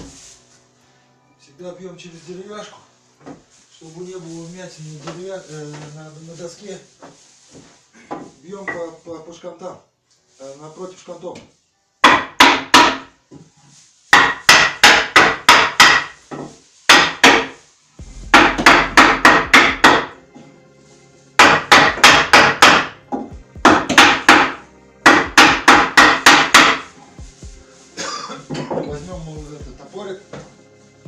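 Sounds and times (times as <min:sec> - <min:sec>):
hammer striking wooden block: 0:12.0 - 0:13.1, 0:14.1 - 0:17.6, 0:18.2 - 0:20.2, 0:21.4 - 0:26.9.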